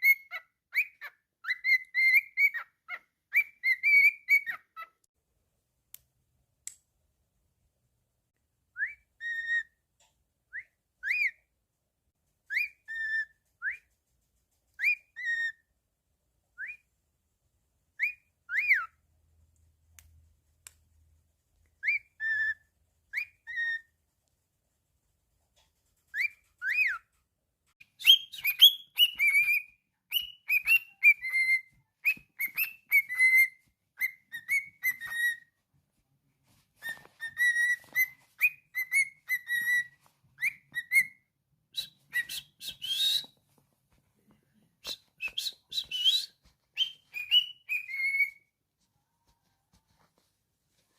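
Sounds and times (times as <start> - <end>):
cockatiel whistling: 0.0 - 4.9, 8.7 - 9.8, 10.5 - 11.5, 12.5 - 14.0, 14.8 - 15.7, 16.6 - 16.9, 18.0 - 19.0, 21.8 - 24.0, 26.1 - 27.2, 27.8 - 35.6, 36.8 - 43.4, 44.8 - 48.5.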